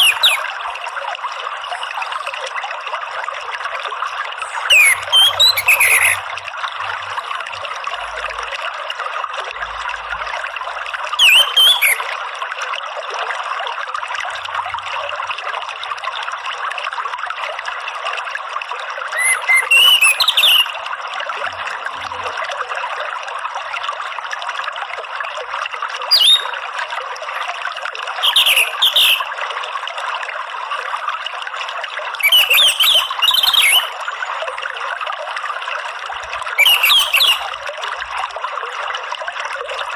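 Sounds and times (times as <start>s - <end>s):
running water: 0.0s - 39.9s
thrush singing: 4.4s - 6.2s.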